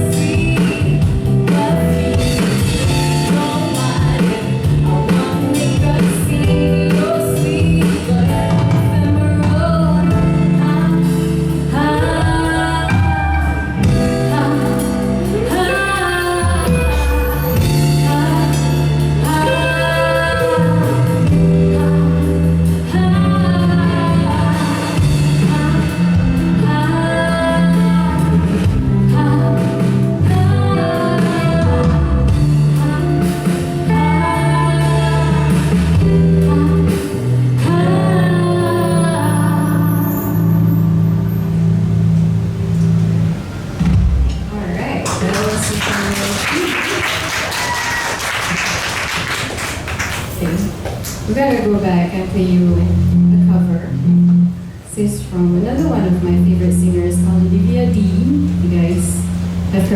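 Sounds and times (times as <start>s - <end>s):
person singing: 0.0s - 40.7s
live band playing: 0.0s - 59.9s.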